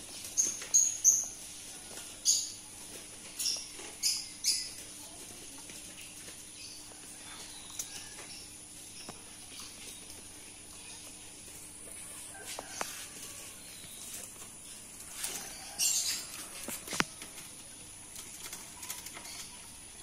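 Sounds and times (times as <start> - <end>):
small bird chirping: 0.0 - 1.5, 3.3 - 5.1
faint steady hum: 0.0 - 20.0.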